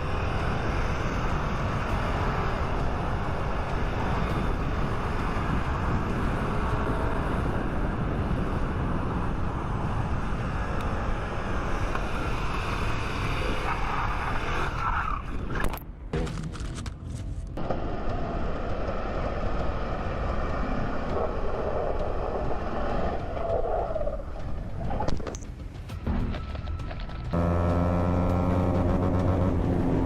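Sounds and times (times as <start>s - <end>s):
wind rush on microphone: 0.0s - 14.7s
motorcycle engine: 26.1s - 30.0s.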